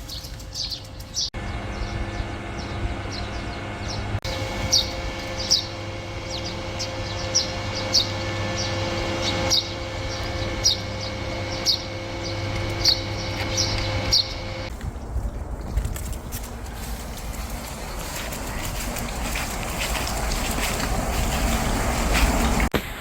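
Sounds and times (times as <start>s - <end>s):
small bird chirping: 0.0s - 15.4s
low mechanical hum: 0.0s - 23.0s.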